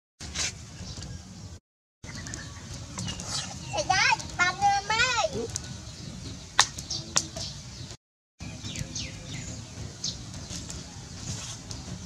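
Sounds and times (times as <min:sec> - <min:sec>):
small birds chirping: 0:00.6 - 0:12.0.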